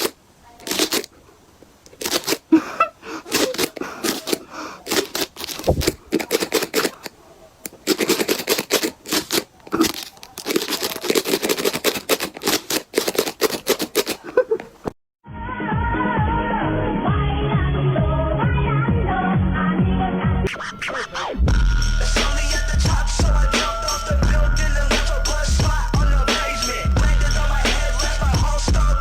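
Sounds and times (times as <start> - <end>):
crinkling and crackling: 0.0 - 2.6, 3.2 - 15.0
music: 15.2 - 29.0.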